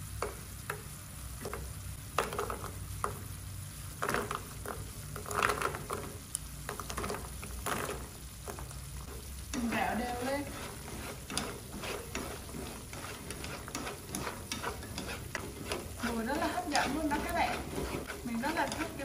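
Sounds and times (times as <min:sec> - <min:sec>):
glaze sizzling in a pan: 0:00.0 - 0:19.0
crackly rustles and knocks: 0:03.9 - 0:09.8
chopsticks tossing against pan: 0:04.0 - 0:19.0.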